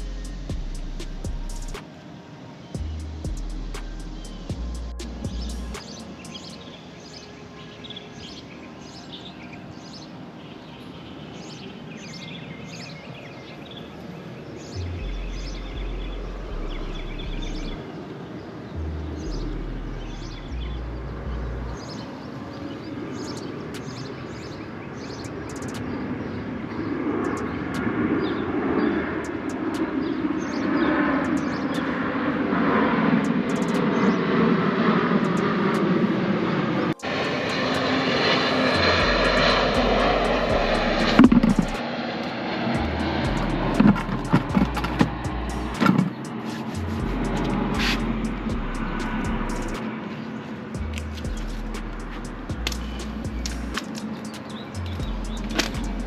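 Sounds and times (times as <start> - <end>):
low rumble: 0.0 - 1.8, 2.8 - 5.8, 38.6 - 41.8, 42.8 - 45.9, 46.8 - 49.8, 50.8 - 53.8, 54.8 - 56.0
small birds chirping: 2.6 - 32.2, 32.8 - 34.4, 42.8 - 56.0.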